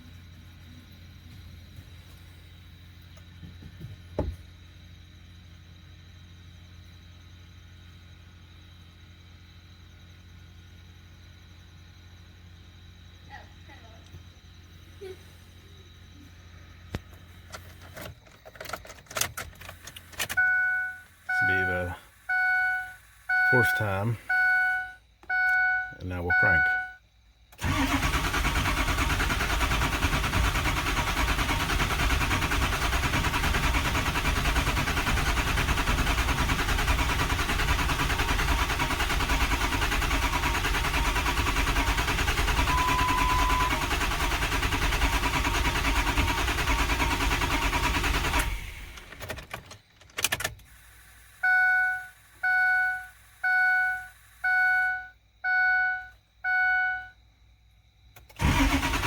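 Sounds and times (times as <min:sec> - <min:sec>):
diesel engine cranking: 0:16.7 - 0:24.6, 0:27.5 - 0:51.6, 0:58.2 - 0:59.0
click: 0:58.2 - 0:58.4.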